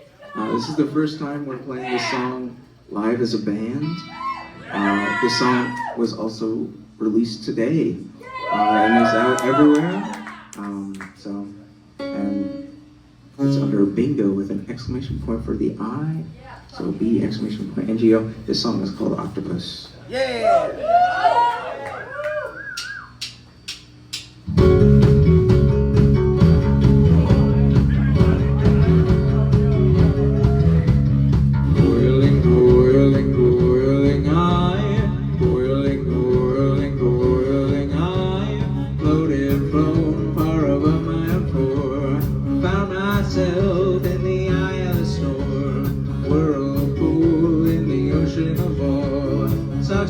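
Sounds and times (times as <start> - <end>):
rock band playing: 24.4 - 50.0.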